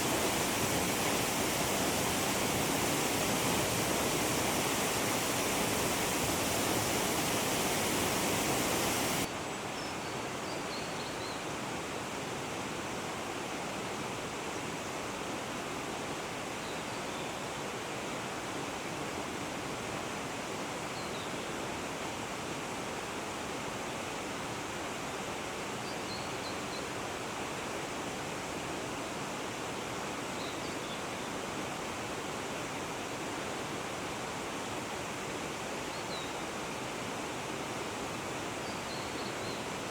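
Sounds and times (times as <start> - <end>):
waterfall rushing: 0.0 - 9.3.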